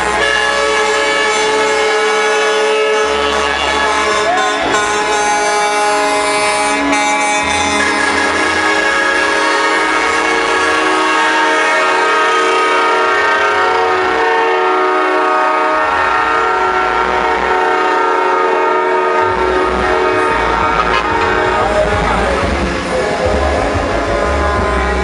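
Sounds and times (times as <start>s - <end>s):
air horn chord: 0.0s - 25.0s
deep bass from sound system: 19.2s - 25.0s.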